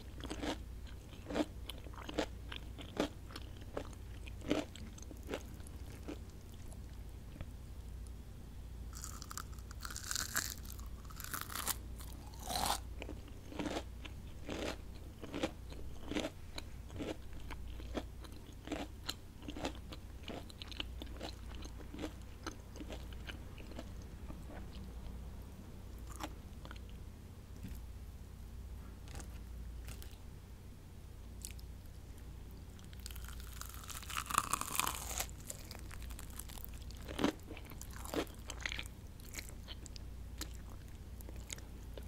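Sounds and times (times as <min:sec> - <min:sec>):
crunchy chewing of fried food: 0:00.0 - 0:07.5, 0:08.9 - 0:25.2, 0:25.9 - 0:27.8, 0:29.0 - 0:30.3, 0:31.4 - 0:42.0
steady low hum: 0:00.0 - 0:42.0
crunchy bite with crackling: 0:00.1 - 0:06.7, 0:08.9 - 0:16.3, 0:32.8 - 0:39.8.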